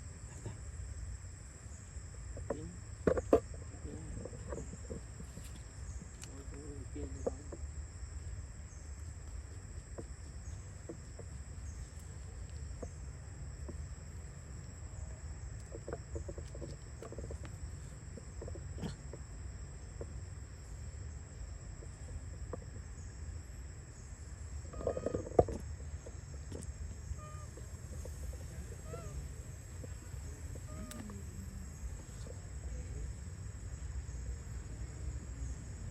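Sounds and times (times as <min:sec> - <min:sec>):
high-pitched insect drone: 0:23.9 - 0:35.9
faint clicks: 0:29.8 - 0:31.3.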